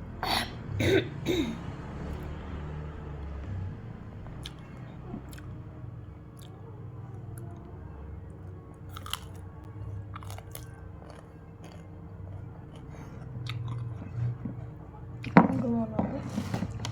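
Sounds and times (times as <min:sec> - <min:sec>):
chewing raw vegetables: 0:04.2 - 0:16.9.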